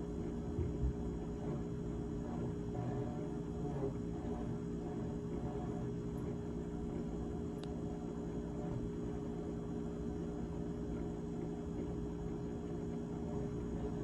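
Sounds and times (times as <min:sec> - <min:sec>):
refrigerator humming: 0:00.0 - 0:14.0.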